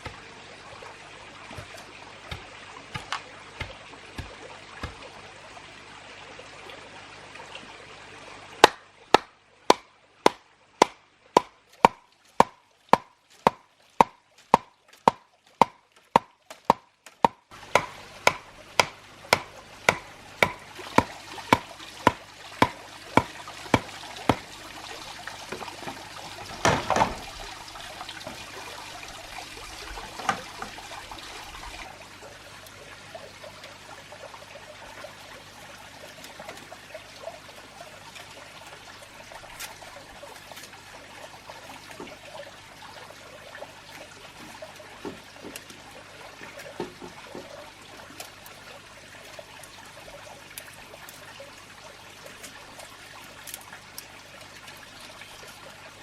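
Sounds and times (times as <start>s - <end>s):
sharp knocks: 8.6s - 24.4s.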